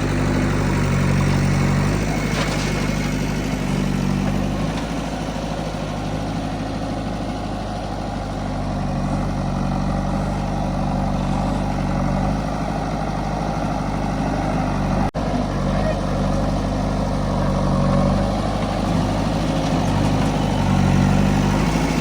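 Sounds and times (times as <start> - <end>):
diesel engine running at low revs: 0.0 - 22.0.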